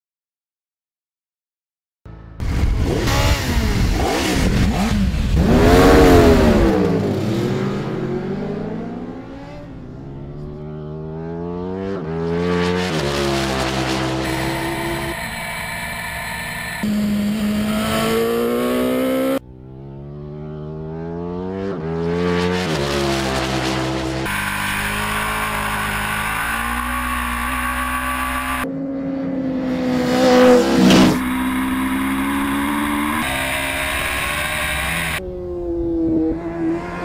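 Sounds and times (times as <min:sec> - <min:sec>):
motorcycle engines accelerating: 0:02.4 - 0:37.0.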